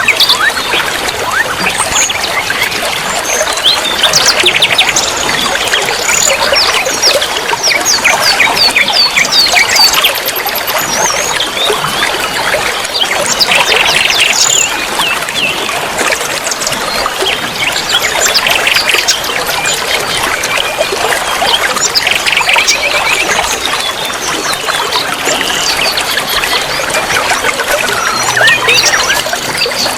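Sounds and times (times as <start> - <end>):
songbirds chirping and trilling: 0.0 - 29.9
trickle of running water: 0.0 - 29.9.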